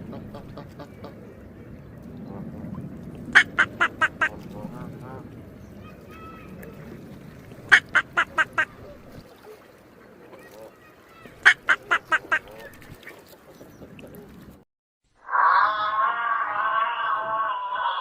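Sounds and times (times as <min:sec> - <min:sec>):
duck quacking: 0:03.4 - 0:05.2, 0:07.7 - 0:08.7, 0:11.4 - 0:12.6.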